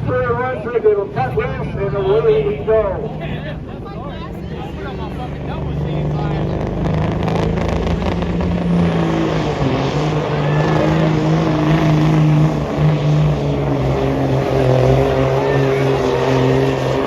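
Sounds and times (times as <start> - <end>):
diesel engine revving hard: 4.6 - 17.0.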